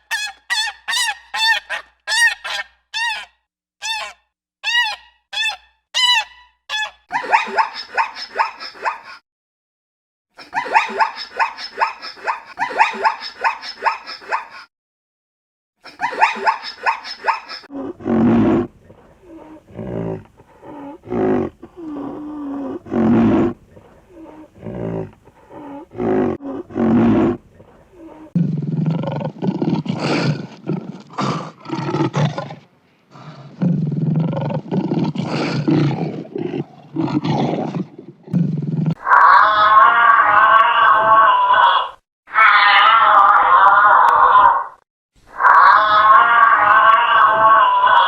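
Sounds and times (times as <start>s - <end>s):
dog yelping: 0.0s - 9.1s
big cat roaring: 17.7s - 44.7s.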